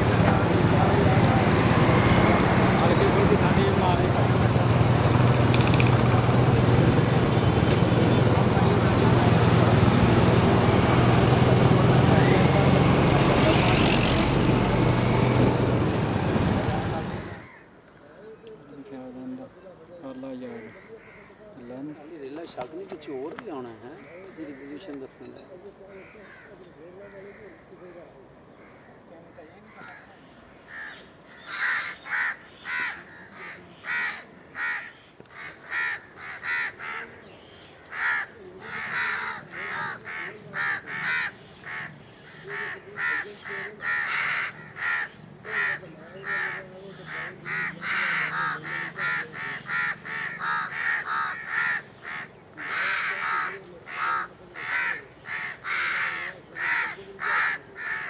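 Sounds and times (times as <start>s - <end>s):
flock of birds calling harshly: 16.4s - 17.7s, 20.3s - 22.1s, 25.9s - 28.0s, 29.5s - 58.0s.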